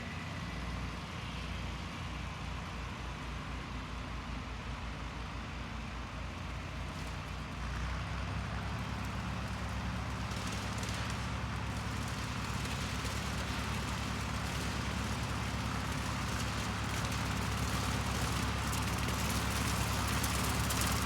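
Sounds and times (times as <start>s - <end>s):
tractor engine drone: 0.0s - 21.0s.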